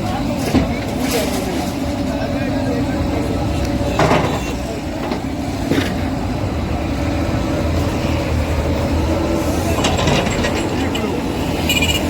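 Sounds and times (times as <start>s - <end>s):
heavy engine rumbling: 0.0s - 12.0s.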